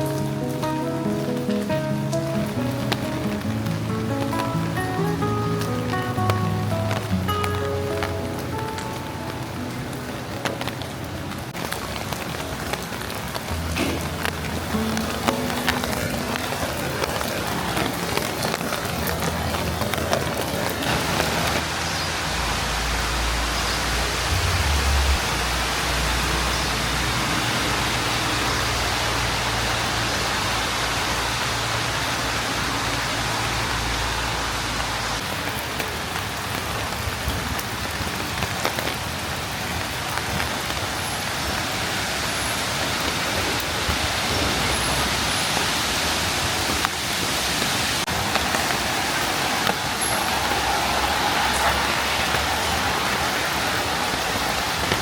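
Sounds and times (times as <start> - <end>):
rain on surfaces: 0.0 - 55.0
low rumble: 21.6 - 27.3.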